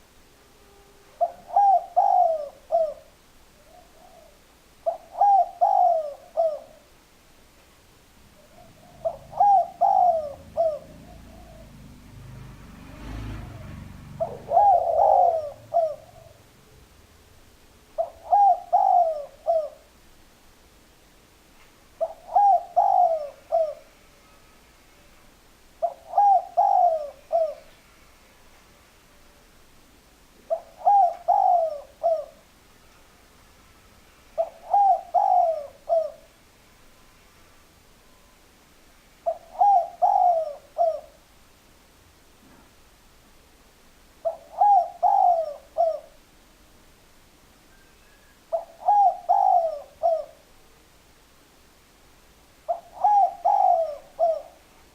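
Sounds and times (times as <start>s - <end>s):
dove cooing: 1.1s - 7.0s, 8.3s - 17.0s, 18.0s - 19.9s, 22.0s - 24.4s, 25.8s - 27.9s, 30.4s - 32.5s, 34.3s - 36.4s, 39.2s - 41.2s, 44.2s - 46.2s, 48.0s - 50.5s, 52.6s - 54.9s.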